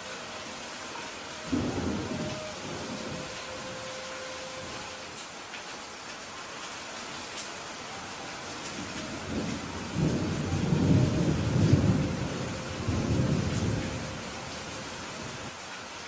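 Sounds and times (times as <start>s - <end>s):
steady rain: 0.0s - 16.0s
thunder rumbling: 1.4s - 4.9s, 8.7s - 15.5s.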